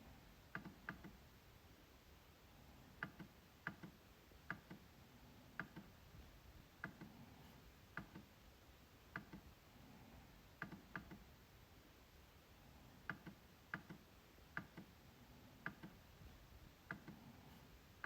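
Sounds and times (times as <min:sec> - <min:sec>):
trackpad clicking: 0:10.6 - 0:11.2, 0:15.6 - 0:16.0.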